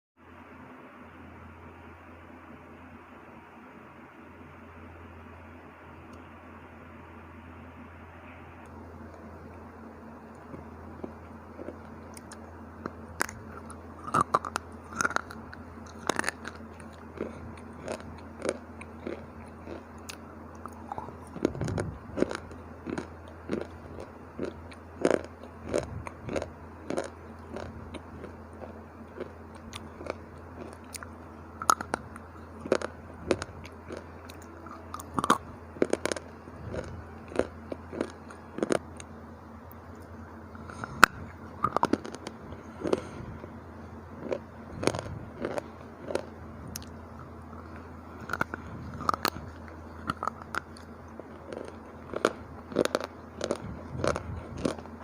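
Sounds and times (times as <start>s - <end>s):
low steady hum: 0.2s - 55.0s
crunching hard chips: 10.4s - 39.1s, 40.6s - 43.2s, 44.2s - 55.0s.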